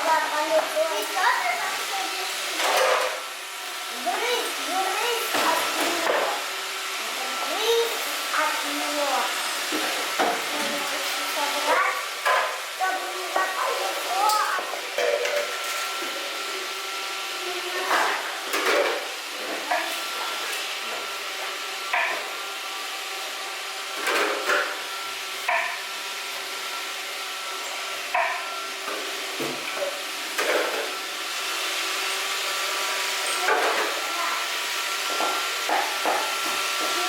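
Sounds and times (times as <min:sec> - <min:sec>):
robot vacuum whirring: 0:00.4 - 0:18.5.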